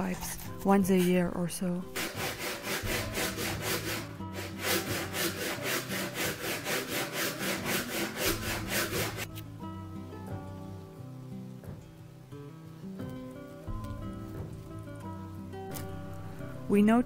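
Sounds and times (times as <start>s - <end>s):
soft music: 0.0s - 17.0s
handsaw cutting wood: 1.9s - 9.3s.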